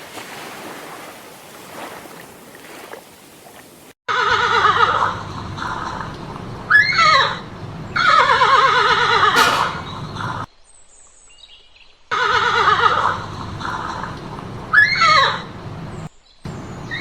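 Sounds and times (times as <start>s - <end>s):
horse whinnying: 6.7s - 10.5s.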